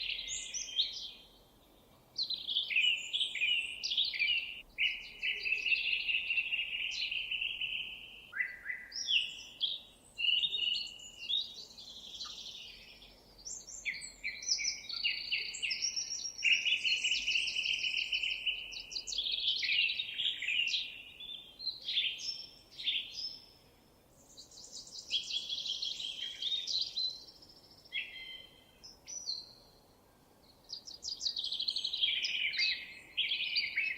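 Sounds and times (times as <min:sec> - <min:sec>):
songbirds singing: 0:00.0 - 0:33.9.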